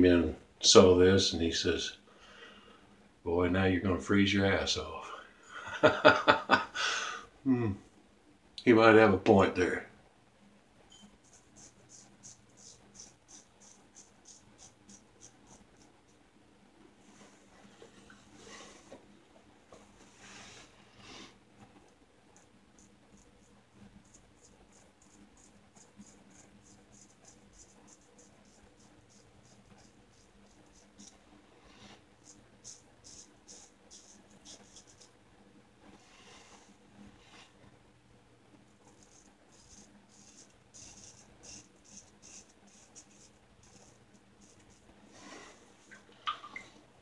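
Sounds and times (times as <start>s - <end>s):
razor scraping stubble: 39.0s - 44.8s.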